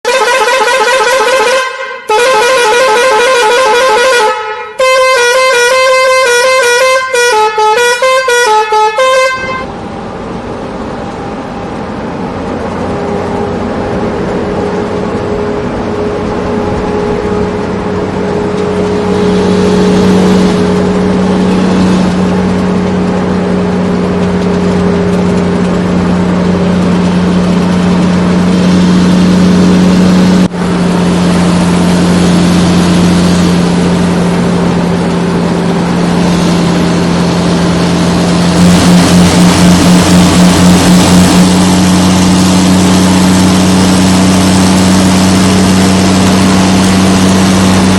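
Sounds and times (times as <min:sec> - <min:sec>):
wavering horn-like tune: 0:00.1 - 0:09.8
vehicle engine running: 0:09.0 - 0:47.9.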